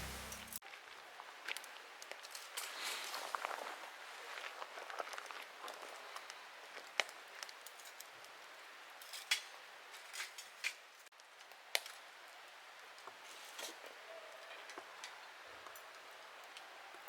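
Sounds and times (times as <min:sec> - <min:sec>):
faint steady hiss: 0:00.0 - 0:00.6.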